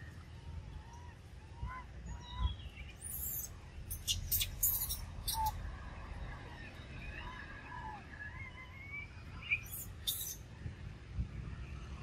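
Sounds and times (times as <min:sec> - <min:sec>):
birds chirping and calling: 0:02.1 - 0:05.6, 0:09.4 - 0:10.4.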